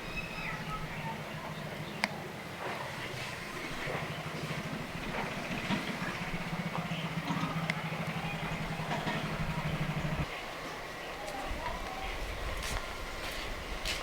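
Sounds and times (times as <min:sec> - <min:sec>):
low motor hum: 0:00.0 - 0:13.9.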